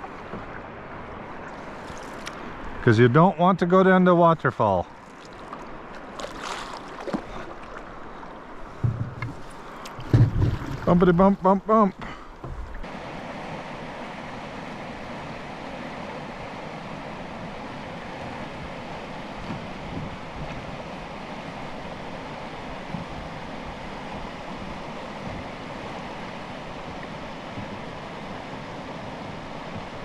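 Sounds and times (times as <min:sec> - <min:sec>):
small water splashes: 0:00.0 - 0:02.8, 0:04.8 - 0:12.9
whitewater rushing: 0:09.5 - 0:30.0.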